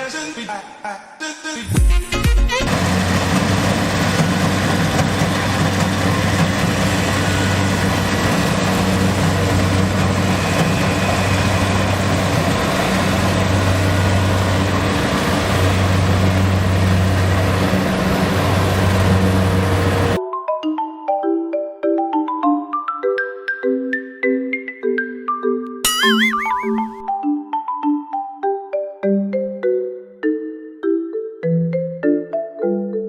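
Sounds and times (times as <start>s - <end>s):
heavy machine engine running: 2.5s - 20.2s.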